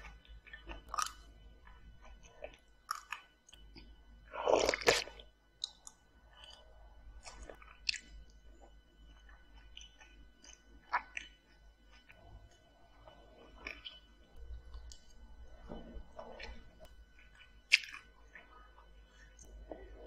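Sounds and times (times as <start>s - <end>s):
close chewing: 16.1s - 20.0s.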